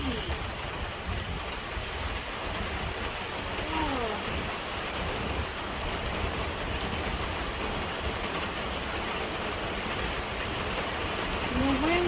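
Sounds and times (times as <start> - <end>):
heavy rain hissing: 0.0 - 12.0
wind gusting against microphone: 0.0 - 12.0.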